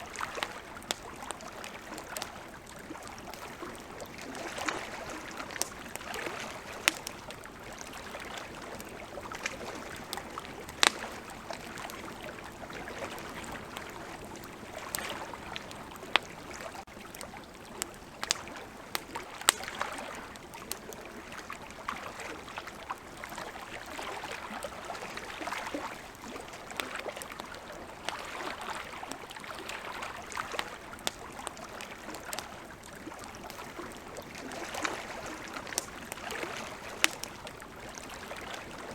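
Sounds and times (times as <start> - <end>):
campfire crackling and popping: 0.0 - 38.9
flowing river water: 0.0 - 38.9.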